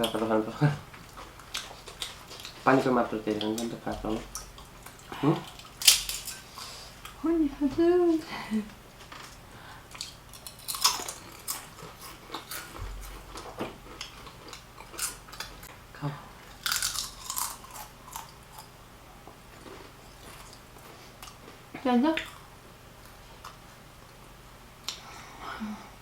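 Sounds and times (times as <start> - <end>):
crunchy chewing of food: 0.8 - 7.2, 9.0 - 15.7, 16.4 - 24.2.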